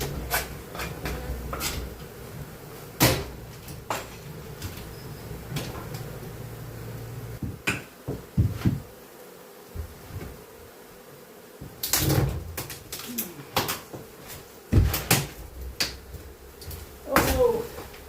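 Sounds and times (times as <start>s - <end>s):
honeybees humming: 0.0s - 18.0s
dull thumps: 7.3s - 9.0s, 13.5s - 17.6s.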